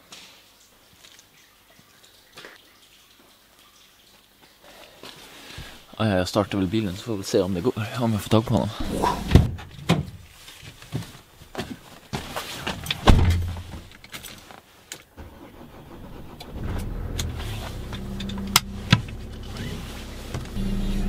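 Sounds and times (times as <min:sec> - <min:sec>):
car engine starting and idling: 0:15.2 - 0:21.0.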